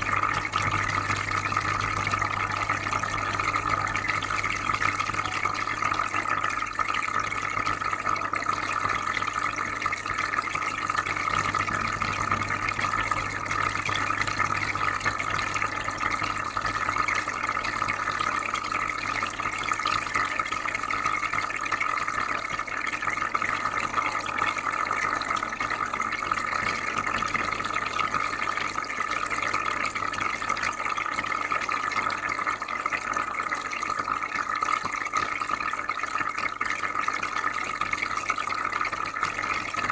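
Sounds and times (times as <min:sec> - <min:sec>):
filter low hum: 0:00.0 - 0:08.0, 0:09.0 - 0:20.0, 0:23.2 - 0:29.6
aquarium water bubbling: 0:00.0 - 0:39.9.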